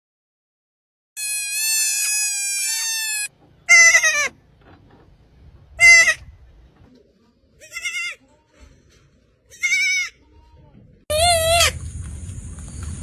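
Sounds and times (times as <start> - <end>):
animal bleating: 1.2 - 4.3, 5.8 - 6.2, 7.6 - 8.2, 9.5 - 10.2.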